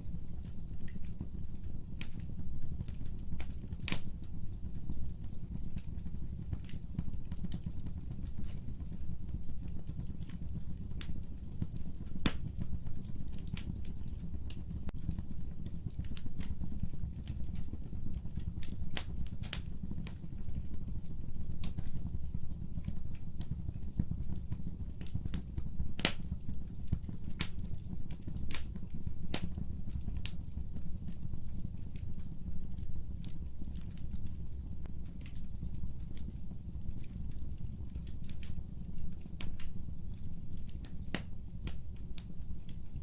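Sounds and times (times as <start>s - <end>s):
fire crackling and popping: 0.0s - 43.0s
fire rumbling: 0.0s - 43.0s.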